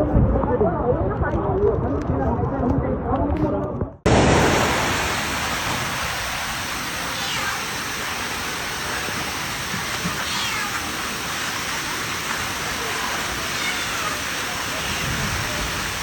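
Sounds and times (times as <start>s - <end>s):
rushing water: 4.1s - 16.0s
cat meowing faintly: 7.0s - 7.7s, 10.1s - 10.9s, 13.4s - 15.7s.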